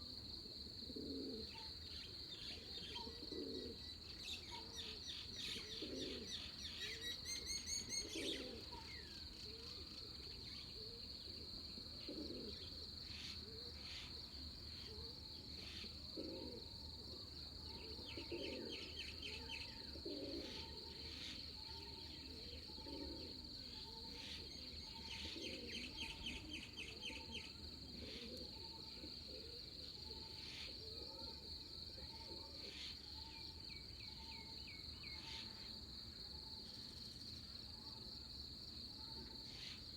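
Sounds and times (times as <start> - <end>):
low cooing calls: 0.8 - 1.8, 2.4 - 9.8, 10.8 - 14.1, 15.6 - 16.8, 17.7 - 33.4
insect drone: 4.9 - 39.9.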